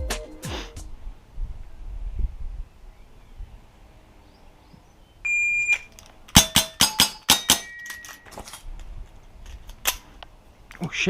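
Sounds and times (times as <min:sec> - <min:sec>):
shot timer beep: 0:05.3 - 0:05.9
airsoft revolver shots: 0:06.3 - 0:07.8
metallic ringing of steel targets: 0:06.3 - 0:08.6.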